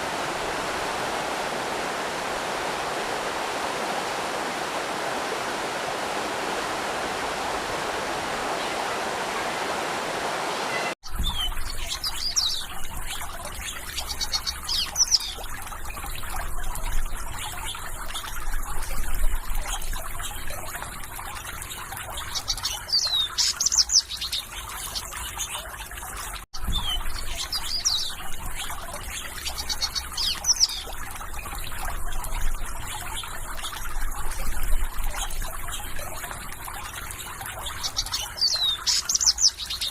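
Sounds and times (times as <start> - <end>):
rushing water: 0.0 - 39.9
trickling stream: 0.0 - 39.9
small birds chirping: 10.7 - 19.0, 21.7 - 39.9.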